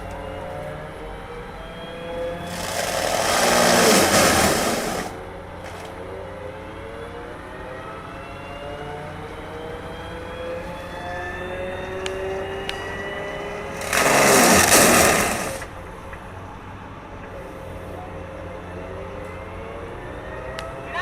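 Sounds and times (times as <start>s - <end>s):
diesel engine under load: 0.0s - 21.0s
loud rushing noise: 2.4s - 5.2s, 13.5s - 15.8s.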